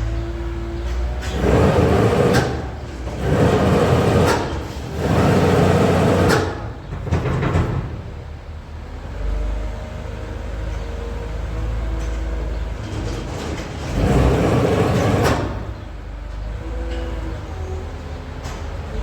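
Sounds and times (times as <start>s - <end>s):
farm machinery droning: 0.1s - 8.2s, 12.5s - 17.8s.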